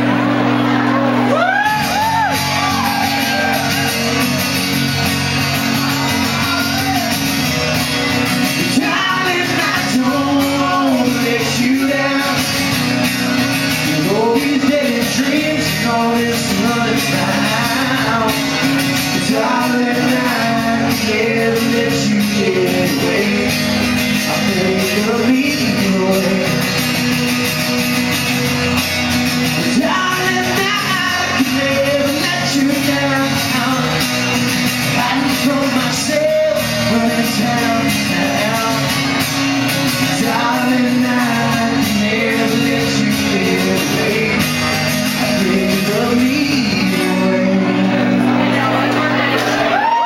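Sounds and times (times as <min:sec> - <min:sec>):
live rock band playing: 0:00.0 - 0:50.0
person singing: 0:08.5 - 0:12.8, 0:13.7 - 0:26.9, 0:29.6 - 0:34.1, 0:34.9 - 0:39.3, 0:39.9 - 0:48.7.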